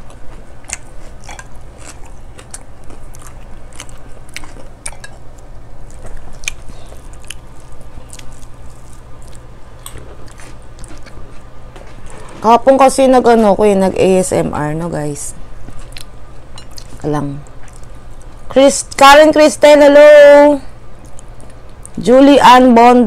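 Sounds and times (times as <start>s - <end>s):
chewing and mouth smacks: 0.0s - 12.2s, 15.6s - 18.5s, 21.0s - 22.0s
low steady hum: 0.0s - 23.0s.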